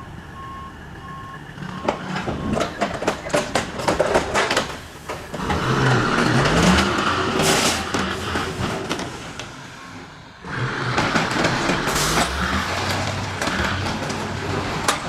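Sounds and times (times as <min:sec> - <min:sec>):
vehicle engine revving: 0:05.3 - 0:09.1, 0:10.4 - 0:15.0.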